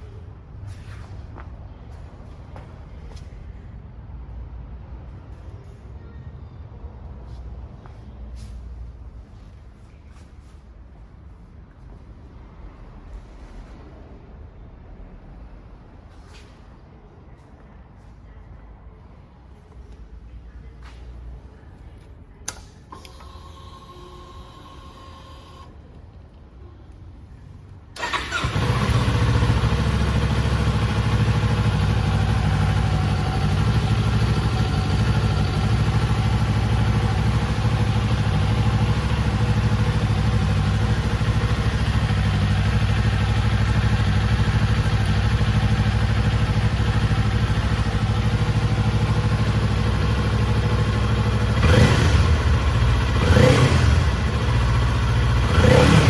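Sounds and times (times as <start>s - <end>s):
motorcycle engine starting and idling: 22.4s - 26.0s, 27.9s - 56.0s.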